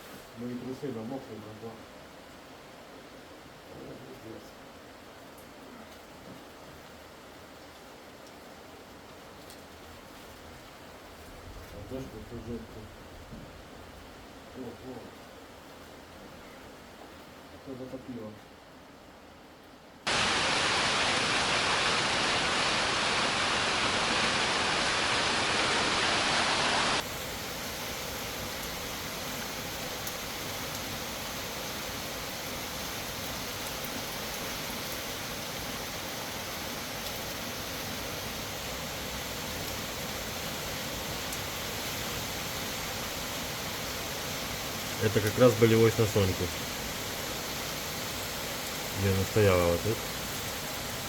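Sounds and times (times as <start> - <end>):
heavy rain: 20.0 - 51.0.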